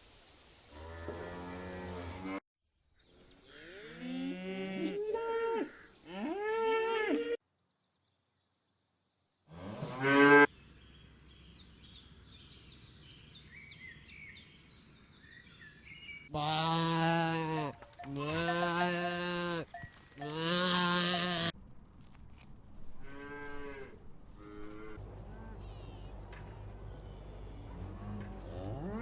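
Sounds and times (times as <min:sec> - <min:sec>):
cow mooing: 0:16.4 - 0:21.5, 0:23.0 - 0:26.1, 0:27.6 - 0:29.0.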